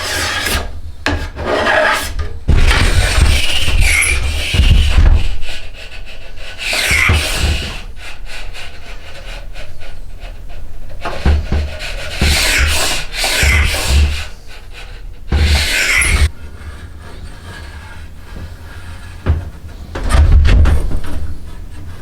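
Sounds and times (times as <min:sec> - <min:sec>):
hand tool rasping wood: 0:00.0 - 0:20.1
dull knocks of wood shifting: 0:19.2 - 0:21.7.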